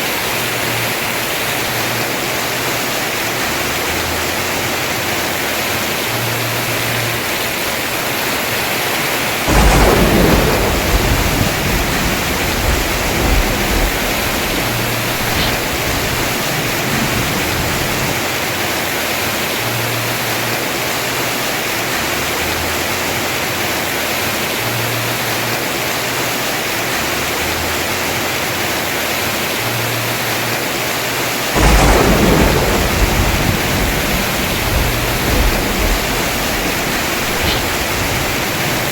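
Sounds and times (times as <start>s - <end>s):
heavy rain on a roof: 0.0s - 38.9s
thunder claps rumbling: 8.6s - 19.2s, 31.6s - 38.9s.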